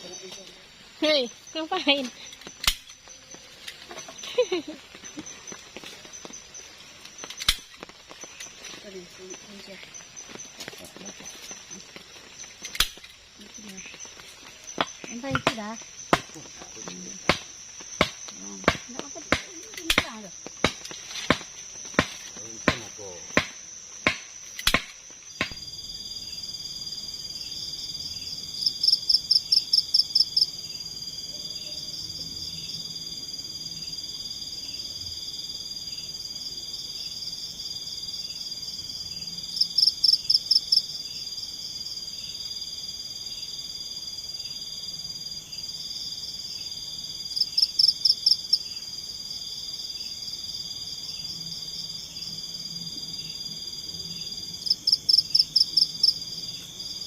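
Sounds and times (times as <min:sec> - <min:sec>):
insects and frogs trilling: 0:00.0 - 0:57.0
sharp knocks: 0:14.8 - 0:16.4, 0:17.2 - 0:25.6.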